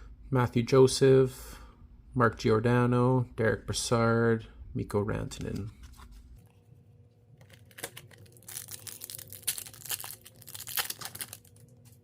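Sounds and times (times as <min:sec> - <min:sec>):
wrapper tearing and crinkling: 0:07.4 - 0:12.0.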